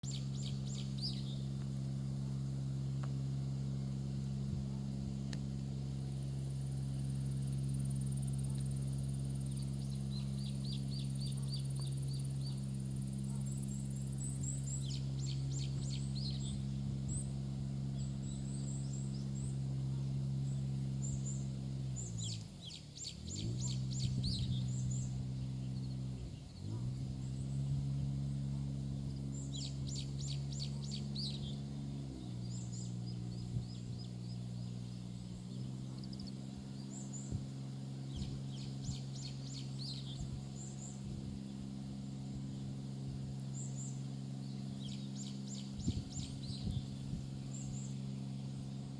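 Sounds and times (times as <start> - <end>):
low mechanical hum: 0.0 - 48.9
rapid high chirping calls: 13.2 - 17.4, 20.5 - 27.6, 29.1 - 41.7, 43.5 - 48.5.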